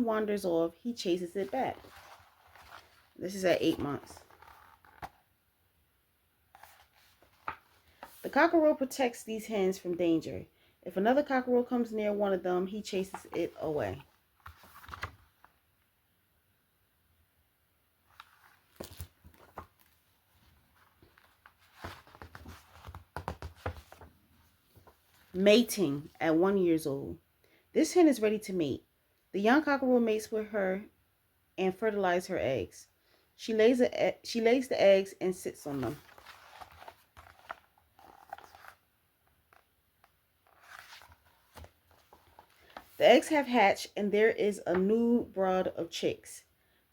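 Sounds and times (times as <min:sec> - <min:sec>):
book pages turning: 0:01.4 - 0:05.2, 0:06.5 - 0:08.4, 0:12.9 - 0:15.5, 0:18.1 - 0:25.4, 0:35.6 - 0:43.3.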